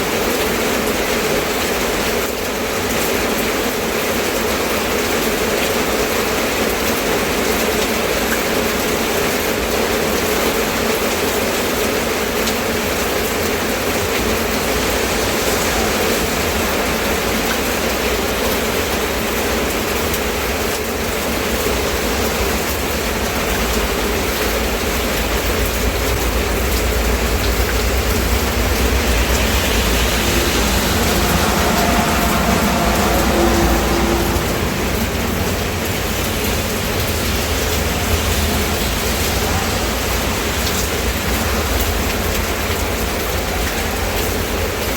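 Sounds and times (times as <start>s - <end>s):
steady rain falling: 0.0s - 44.9s
low rumble: 19.9s - 43.6s.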